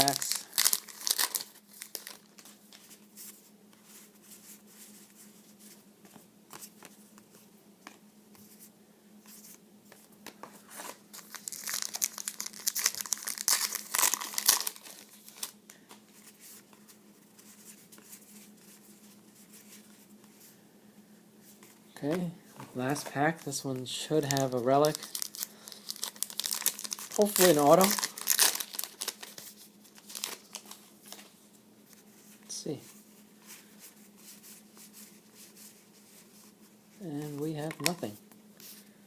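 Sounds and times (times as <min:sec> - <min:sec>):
card wrapper tearing and crinkling: 0:00.0 - 0:02.4, 0:10.7 - 0:15.6, 0:24.2 - 0:31.3.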